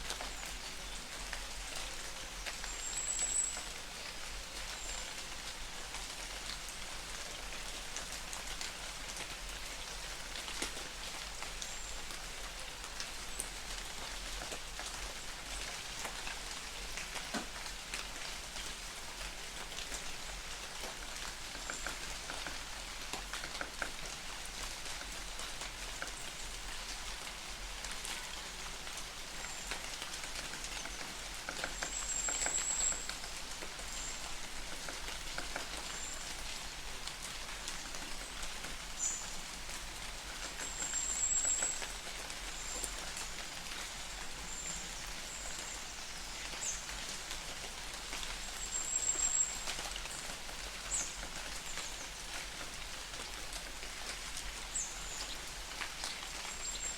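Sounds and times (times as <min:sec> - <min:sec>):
light rain hissing: 0:00.0 - 0:56.9
raindrops ticking: 0:00.1 - 0:56.9.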